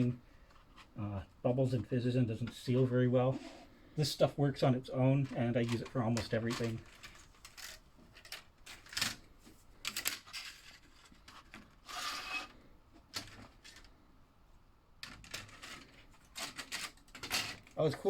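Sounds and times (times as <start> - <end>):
plastic scraping rub: 3.3 - 3.8, 10.3 - 12.6.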